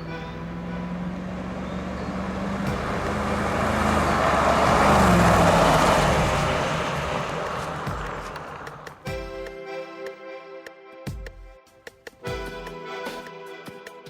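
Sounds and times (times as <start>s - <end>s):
car engine passing by: 0.0s - 9.1s
tyre and road noise: 0.0s - 9.2s.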